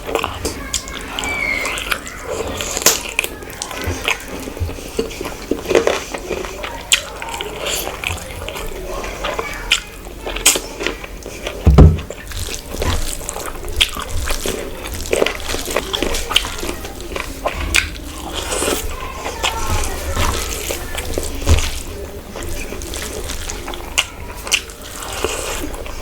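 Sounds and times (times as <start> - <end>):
wet chewing and mouth smacking: 0.0 - 26.0
loud low thump: 11.7 - 12.1.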